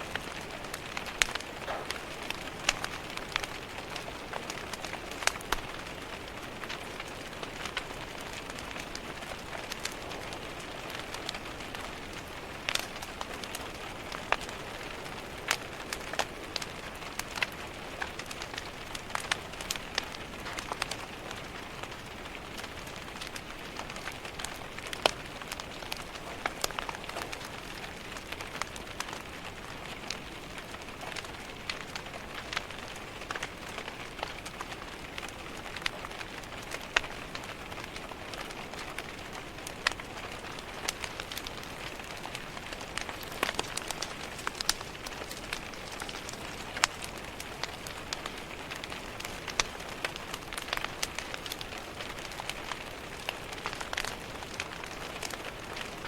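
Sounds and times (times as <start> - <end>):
rain pattering on a window: 0.0 - 56.0
wood fire crackling: 0.0 - 56.0.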